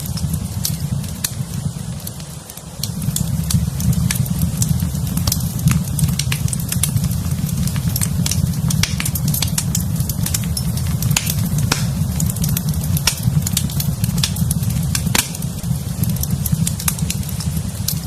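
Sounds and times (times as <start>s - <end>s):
wood fire crackling and popping: 0.0s - 18.0s
low rumble: 2.8s - 18.0s.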